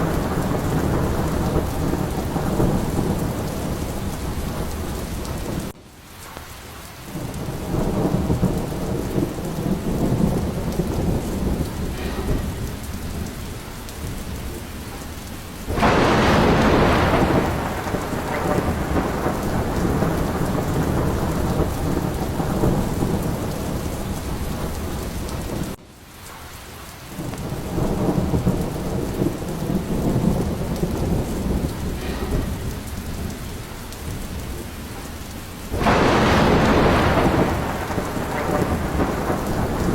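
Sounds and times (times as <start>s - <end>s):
rolling thunder: 0.0s - 5.8s, 7.1s - 25.8s, 27.1s - 39.9s
steady rain: 0.0s - 39.9s.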